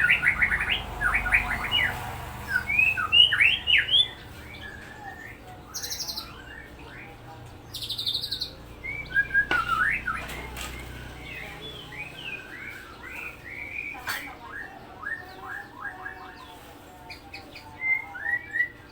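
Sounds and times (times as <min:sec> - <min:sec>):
bird singing whistled notes: 0:02.5 - 0:07.1, 0:07.7 - 0:16.4.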